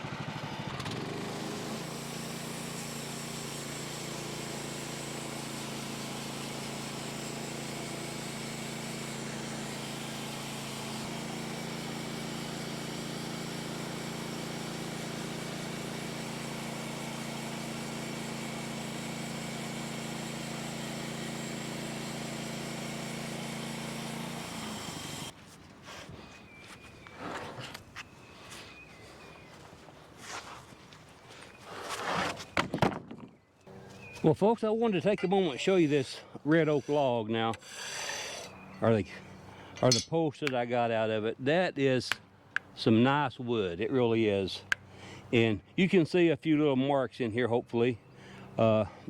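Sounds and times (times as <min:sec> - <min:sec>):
sawmill engine running: 0:00.0 - 0:25.4.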